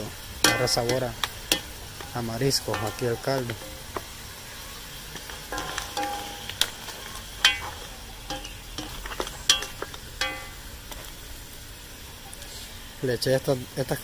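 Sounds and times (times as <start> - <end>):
crabs sizzling in a pot: 0.0 - 14.0
spatula knocking against pot: 7.5 - 10.6.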